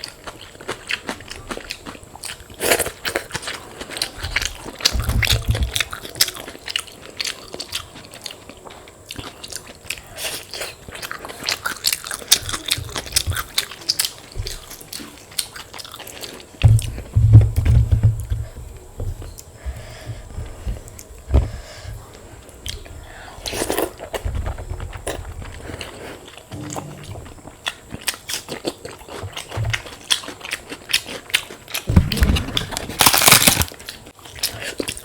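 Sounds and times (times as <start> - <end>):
chewing crisp fried food: 0.0 - 16.6, 22.0 - 26.6, 27.6 - 31.9, 32.6 - 35.0
low bumps: 16.6 - 21.6, 26.5 - 28.0.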